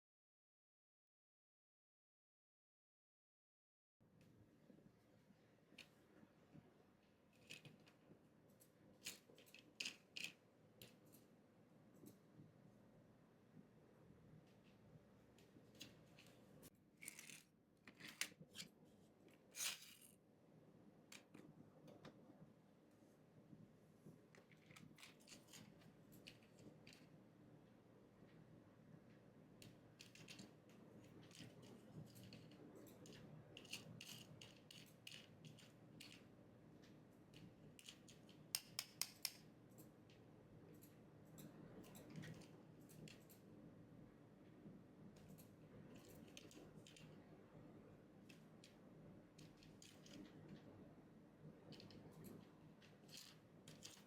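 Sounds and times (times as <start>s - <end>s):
small objects clicking and rustling: 9.0s - 11.2s, 15.7s - 18.7s, 19.5s - 20.2s, 29.6s - 36.3s, 51.6s - 54.0s.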